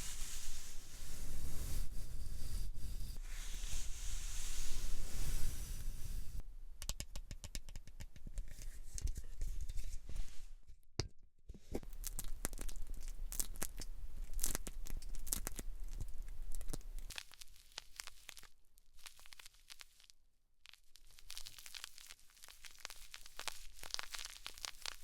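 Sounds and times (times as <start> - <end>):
soft hiss: 0.0 - 6.5
hair and scalp crackling: 20.7 - 25.0.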